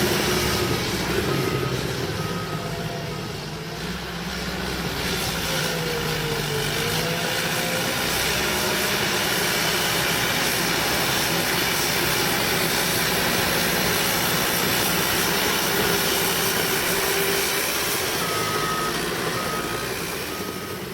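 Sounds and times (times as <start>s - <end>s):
bulldozer diesel engine: 0.0s - 20.9s
backup alarm beeping: 15.0s - 20.9s.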